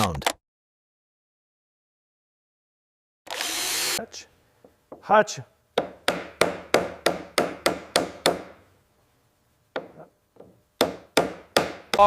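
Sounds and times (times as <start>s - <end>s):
hammer strikes: 5.8s - 8.6s, 9.7s - 12.0s.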